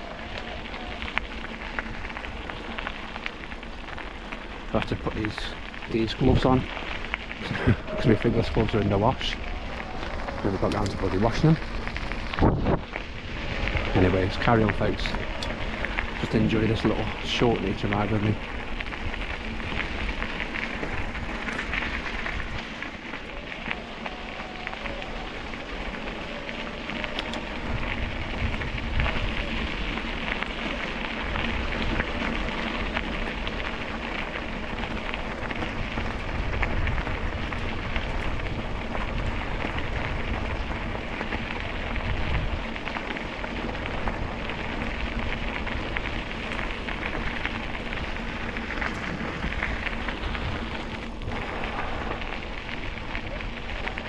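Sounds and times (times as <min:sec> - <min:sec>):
tyres crackling over rough path: 0:00.0 - 0:54.0
wind on microphone: 0:07.4 - 0:22.8, 0:27.0 - 0:30.3, 0:34.8 - 0:54.0.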